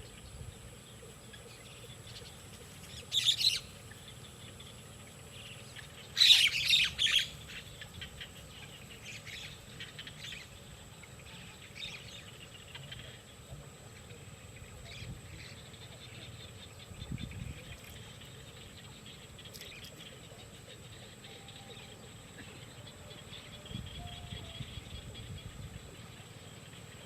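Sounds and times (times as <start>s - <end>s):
birds squawking: 0.8s - 13.4s, 14.8s - 27.0s.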